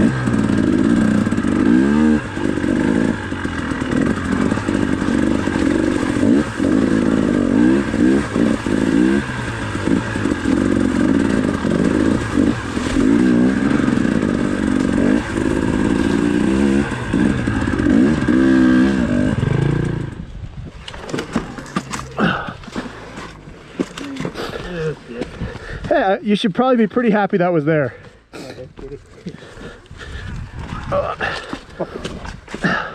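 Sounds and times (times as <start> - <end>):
dirt bike engine revving: 0.0 - 20.3.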